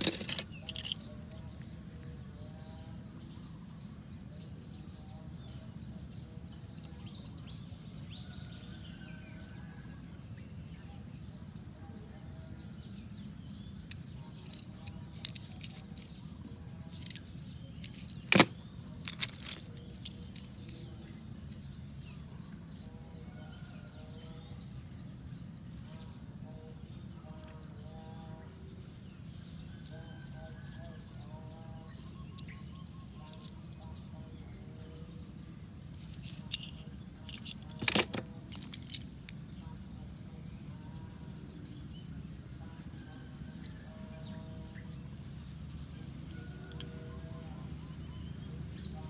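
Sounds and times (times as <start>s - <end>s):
sharp clicks: 0.0s - 1.1s
high insect drone: 0.0s - 49.0s.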